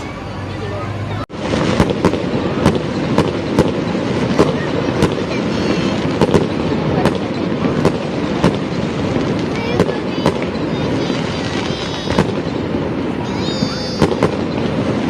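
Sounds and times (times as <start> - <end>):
dense crackle and rumble: 1.3 - 15.0
fireworks sharp cracks: 1.3 - 15.0.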